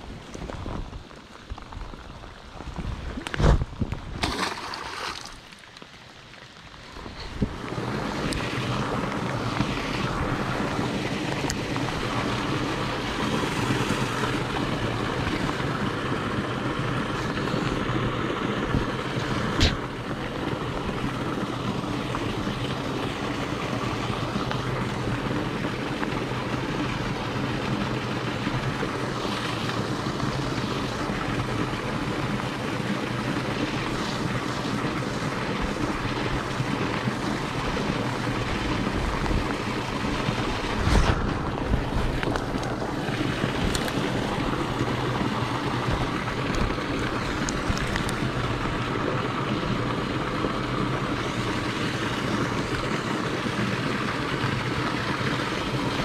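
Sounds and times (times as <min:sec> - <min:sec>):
wind on microphone: 0:00.0 - 0:04.4, 0:07.0 - 0:25.6, 0:33.7 - 0:49.9
rain falling on pond: 0:00.0 - 0:56.0.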